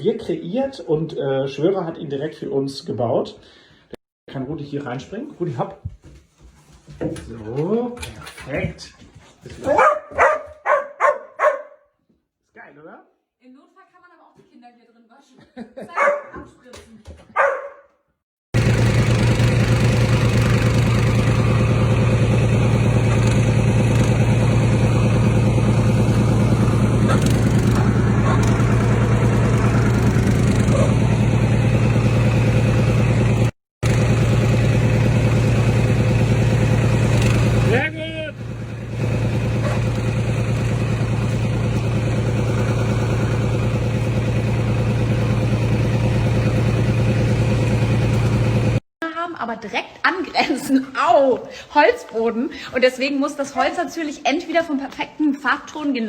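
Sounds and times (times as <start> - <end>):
engine running steadily: 18.6 - 48.8
low mechanical drone: 23.2 - 32.1.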